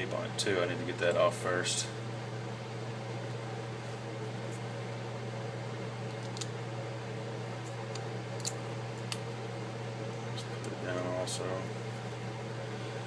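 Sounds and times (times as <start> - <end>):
steady low hum: 0.0 - 13.0
tape peeling clicks and ticks: 6.1 - 6.5, 7.6 - 9.2.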